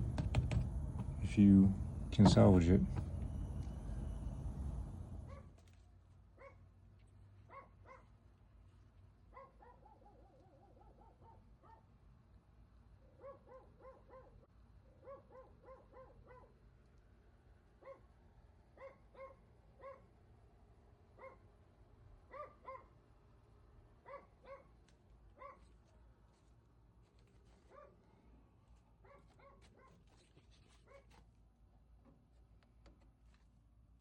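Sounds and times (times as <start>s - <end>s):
faint animal yelps: 9.4s - 11.8s.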